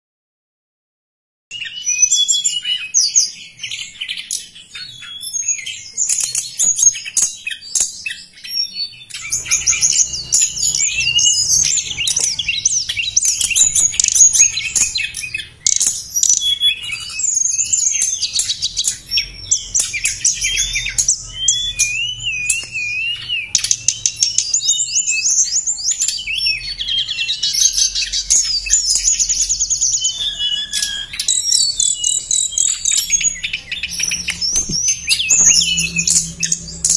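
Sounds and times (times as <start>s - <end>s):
bird chirping and trilling: 1.5s - 36.9s.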